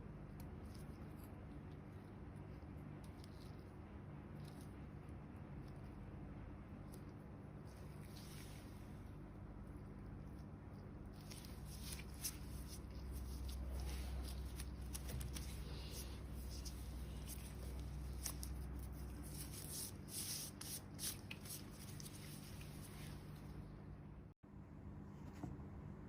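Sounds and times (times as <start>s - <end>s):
faint low hum: 0.0s - 26.0s
hands rubbing with crackles: 11.1s - 23.6s.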